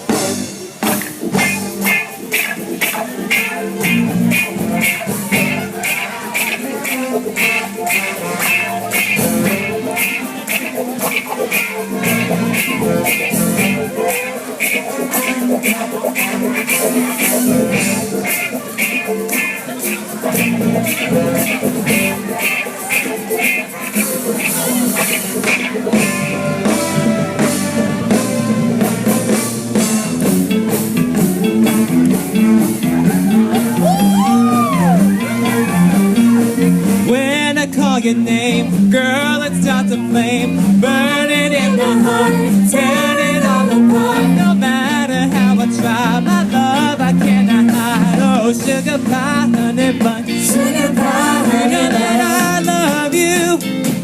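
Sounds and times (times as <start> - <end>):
drum kit: 0.0 - 54.0
guitar: 0.0 - 54.0
live band instrumental music: 0.0 - 54.0
moving bass line: 3.7 - 5.9, 7.3 - 10.1, 11.9 - 13.9, 25.5 - 52.8.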